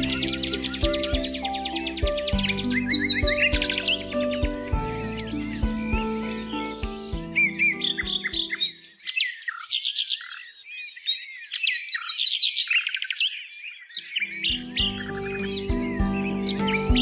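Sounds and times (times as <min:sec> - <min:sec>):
soft background music: 0:00.0 - 0:08.8, 0:14.3 - 0:17.0
songbirds singing: 0:00.0 - 0:17.0.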